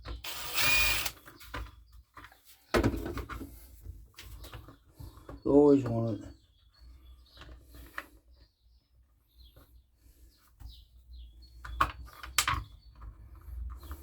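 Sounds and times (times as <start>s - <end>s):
parts clicking and knocking: 0.0s - 1.7s.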